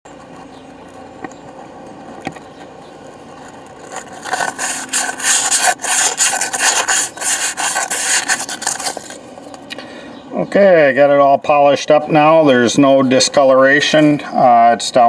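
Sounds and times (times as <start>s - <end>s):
emery cloth rubbing on metal: 3.8s - 9.2s.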